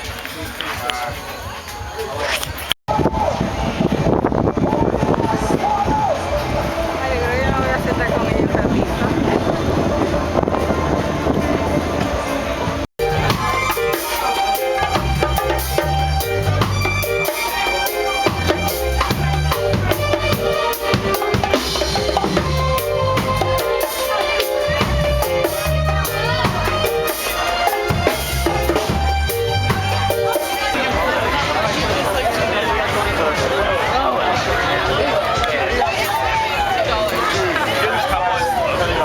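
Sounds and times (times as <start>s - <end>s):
music with drums and bass: 2.4s - 31.8s.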